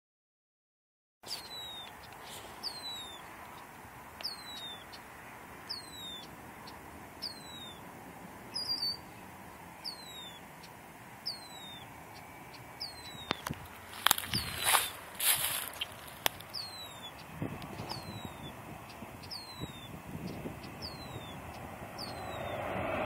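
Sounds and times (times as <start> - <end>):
bird whistle sliding downward: 1.3 - 1.9, 2.6 - 3.2, 5.7 - 6.2, 7.2 - 7.8, 8.5 - 9.1, 9.8 - 10.4, 11.2 - 11.9, 12.8 - 13.4, 17.8 - 18.6, 20.8 - 23.0.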